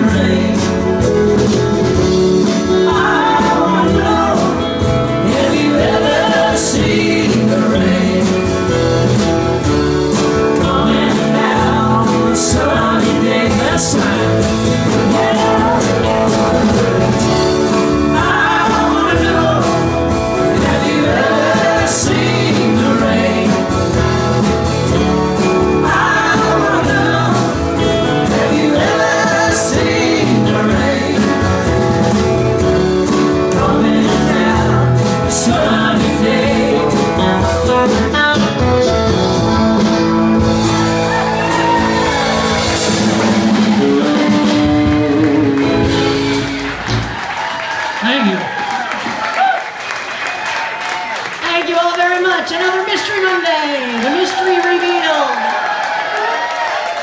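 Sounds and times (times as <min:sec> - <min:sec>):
singer and crowd singing: 0:00.0 - 0:38.4
live rock band: 0:00.0 - 0:57.0.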